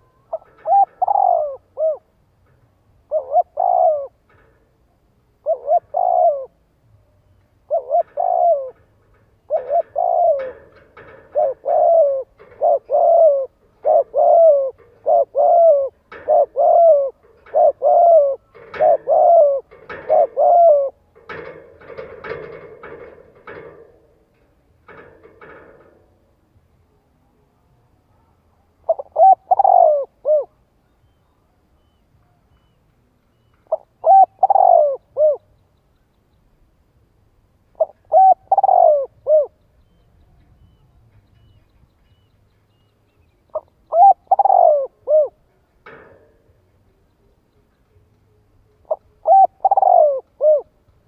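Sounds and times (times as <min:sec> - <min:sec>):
dove cooing: 0:00.0 - 0:02.2, 0:03.0 - 0:04.6, 0:05.4 - 0:06.7, 0:07.6 - 0:24.1, 0:28.8 - 0:30.6, 0:33.7 - 0:35.5, 0:37.7 - 0:40.0, 0:43.5 - 0:46.2, 0:48.8 - 0:50.8.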